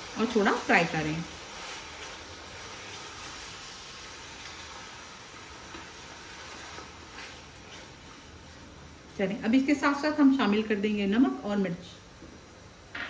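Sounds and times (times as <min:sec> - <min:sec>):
chicken sizzling in hot oil: 0:00.0 - 0:09.1.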